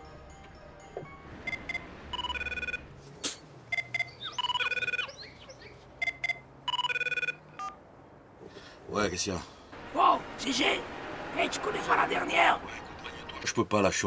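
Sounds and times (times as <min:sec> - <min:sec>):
phone ringtone beeps and chime: 0:01.4 - 0:02.9, 0:03.7 - 0:05.2, 0:06.0 - 0:07.8.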